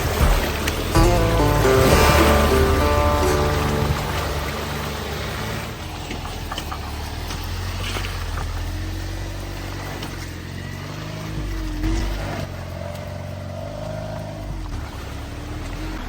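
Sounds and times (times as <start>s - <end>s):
off-road vehicle engine crawling: 5.4s - 16.0s.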